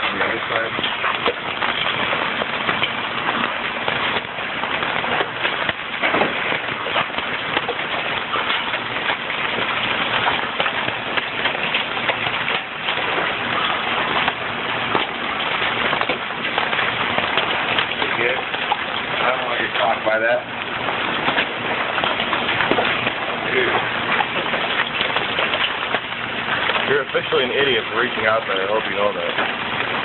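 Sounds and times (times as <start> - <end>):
hail clattering: 0.0 - 30.0.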